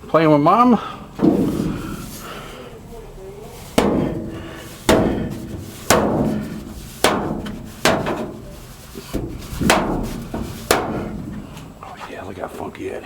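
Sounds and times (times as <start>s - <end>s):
hard knocks with ringing decay: 3.7s - 11.5s.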